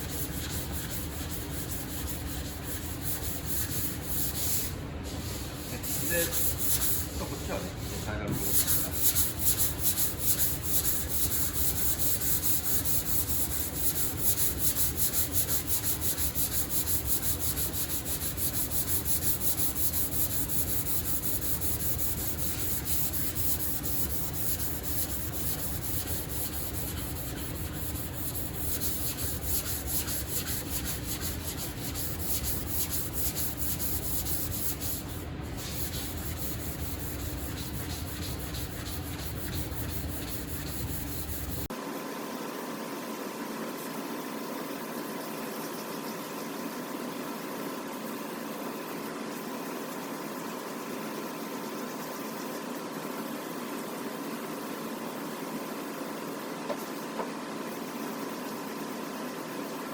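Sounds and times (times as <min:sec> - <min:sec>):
sandpaper scratching on metal panel: 0:00.0 - 0:41.7.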